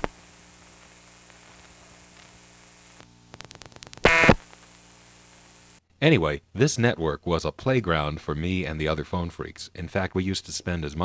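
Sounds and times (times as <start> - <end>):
buzzy tone burst: 0.0 - 5.8
dial-pulse clicks: 0.8 - 5.8.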